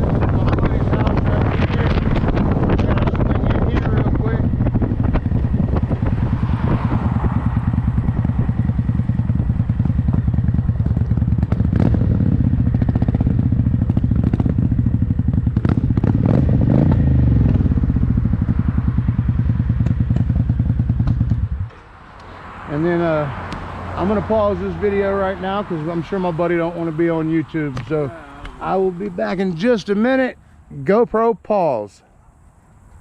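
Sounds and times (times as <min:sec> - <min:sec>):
motorcycle engine running: 0:00.0 - 0:21.8.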